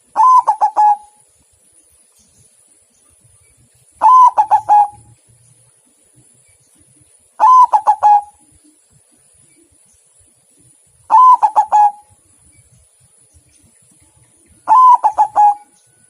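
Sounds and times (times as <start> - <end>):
dove cooing: 0.0 - 1.2, 4.0 - 5.2, 7.4 - 8.5, 11.1 - 12.2, 14.6 - 15.8.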